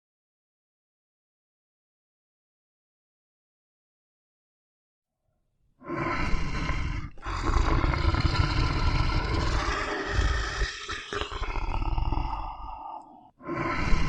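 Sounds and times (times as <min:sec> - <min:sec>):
big cat roaring: 0:05.9 - 0:14.0.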